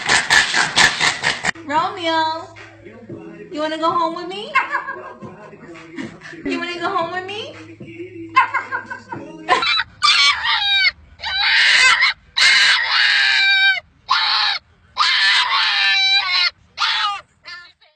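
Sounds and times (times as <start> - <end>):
animal calling harshly: 0.0 - 1.6, 4.5 - 5.2, 8.4 - 17.7.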